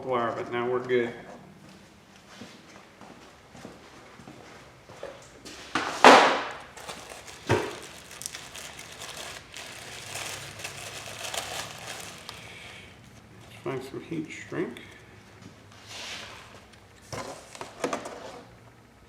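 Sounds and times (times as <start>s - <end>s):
rustling and crinkling: 4.4s - 13.6s.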